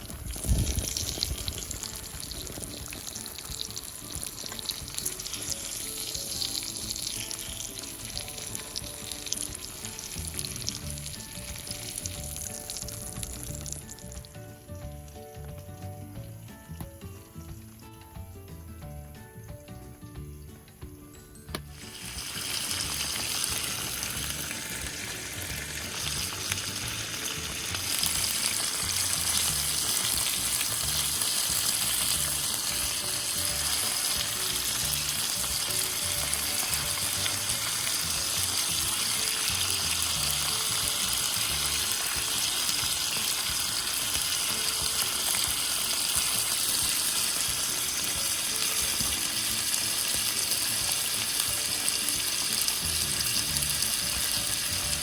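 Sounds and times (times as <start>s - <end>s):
skewers sizzling over campfire: 0.0s - 55.0s.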